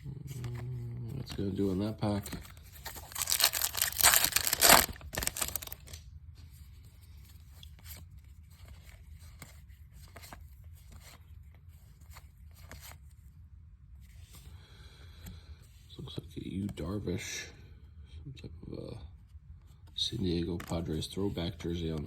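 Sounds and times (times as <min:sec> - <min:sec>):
cards rustling: 0:00.3 - 0:06.0
foil wrapper tearing: 0:02.9 - 0:06.0.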